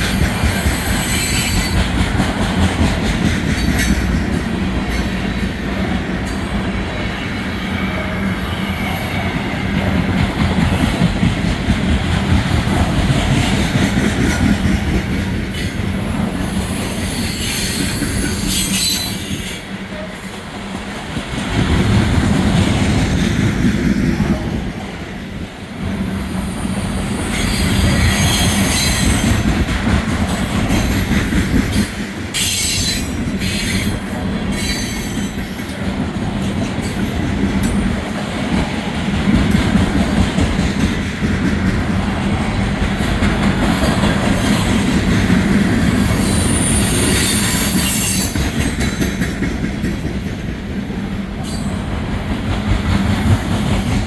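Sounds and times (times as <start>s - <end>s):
steel wheels rumbling on rail: 0.0s - 54.0s
high-pitched wheel squeals: 45.2s - 48.4s.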